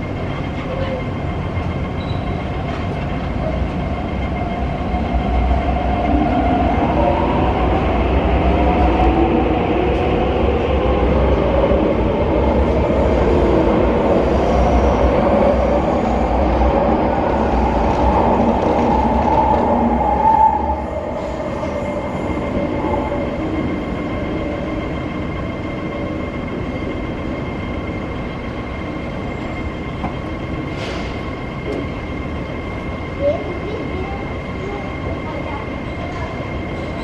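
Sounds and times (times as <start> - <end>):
train pulling out rumbling: 0.0 - 37.0.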